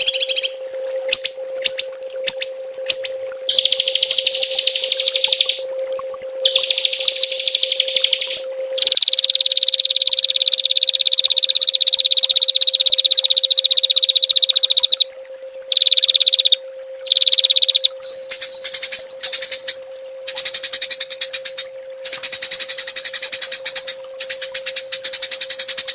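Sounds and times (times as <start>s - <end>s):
songbird trilling: 0.0s - 5.6s, 6.4s - 10.8s, 11.4s - 15.0s, 15.7s - 25.9s
steady low tone: 0.0s - 25.9s.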